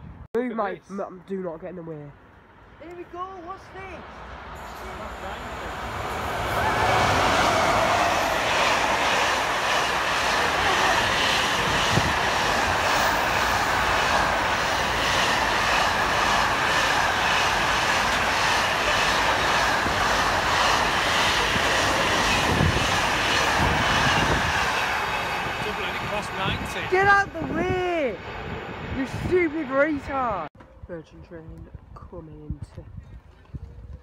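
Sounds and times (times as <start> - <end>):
train wheels rumbling on rail: 4.4 - 30.4
steady high tone: 4.6 - 30.4.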